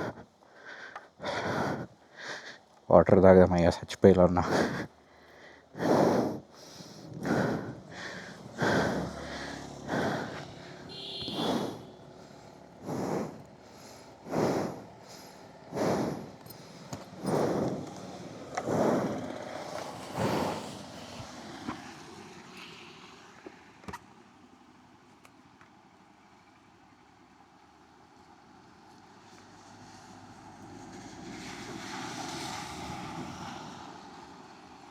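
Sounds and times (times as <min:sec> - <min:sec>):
man panting heavily: 0:00.0 - 0:02.7, 0:04.3 - 0:21.5.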